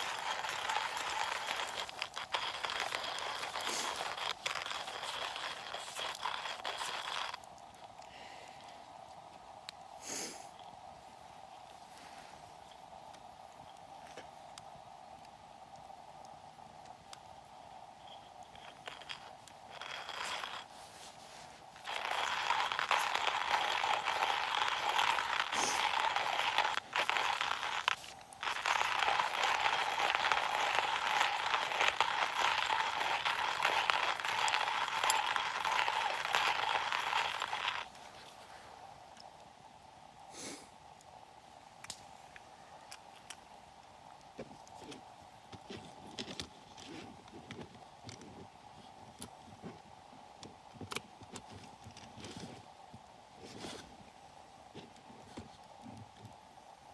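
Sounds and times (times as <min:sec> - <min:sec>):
coffee mill grinding beans: 0:00.0 - 0:07.6, 0:18.0 - 0:38.2.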